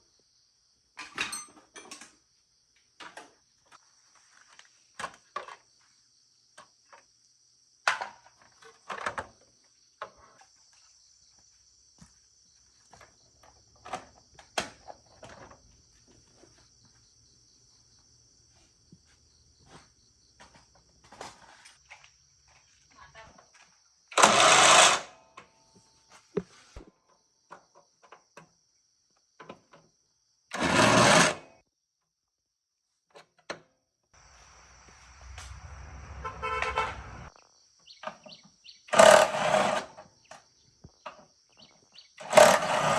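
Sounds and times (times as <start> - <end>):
insects chirring: 34.2 - 39.2, 39.9 - 42.6.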